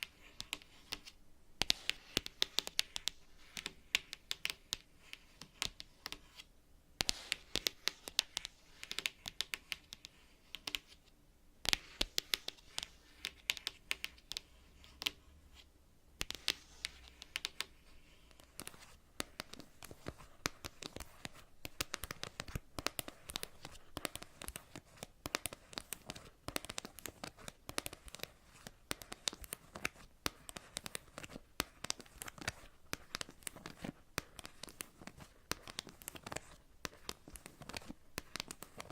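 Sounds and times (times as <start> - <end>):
fingernails tapping on cards: 0.0 - 6.4, 7.0 - 11.0, 11.6 - 15.2, 16.2 - 38.9.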